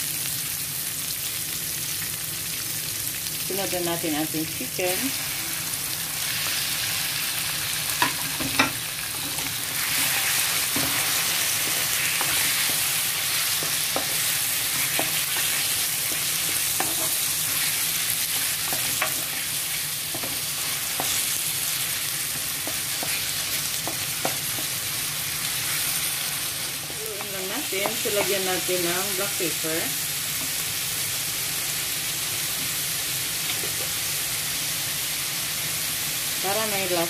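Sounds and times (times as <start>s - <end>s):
chicken sizzling in oil: 0.0s - 37.0s
wooden spoon knocking and scraping pan: 8.0s - 17.7s, 18.3s - 19.4s, 20.1s - 21.2s, 22.3s - 24.8s, 27.2s - 28.5s.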